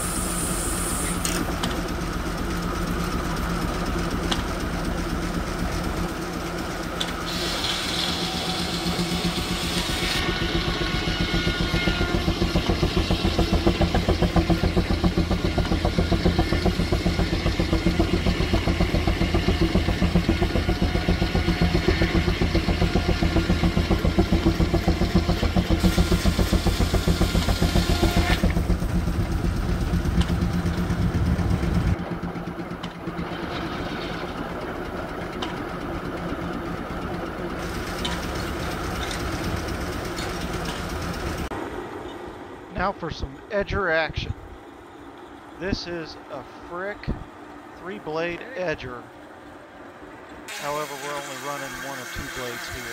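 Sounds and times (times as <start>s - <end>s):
steady machine hum: 0.0s - 52.9s
steam engine rhythmic beat: 1.9s - 32.0s.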